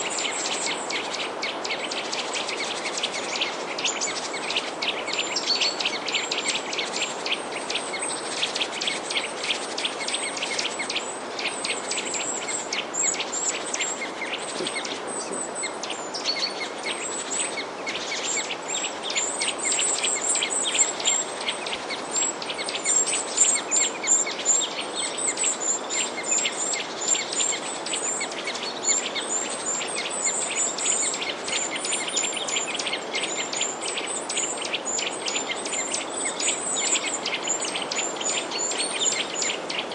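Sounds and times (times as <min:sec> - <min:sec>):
songbirds chirping: 0:00.0 - 0:39.9
steady background hiss: 0:00.0 - 0:39.9.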